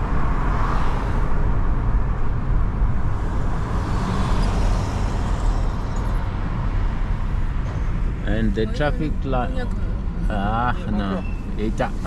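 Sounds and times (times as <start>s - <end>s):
passing traffic: 0.0s - 12.0s
car driving on wet road: 2.8s - 7.6s.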